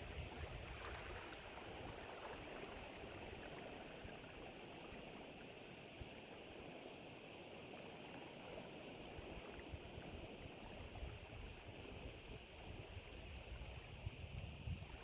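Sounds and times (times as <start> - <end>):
small waves lapping: 0.0 - 14.0
wind buffeting microphone: 10.9 - 15.0.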